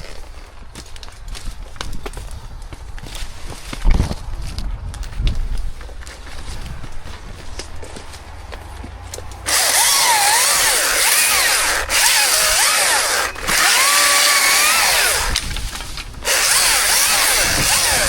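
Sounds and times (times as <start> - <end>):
chainsaw cutting wood: 9.4 - 18.0.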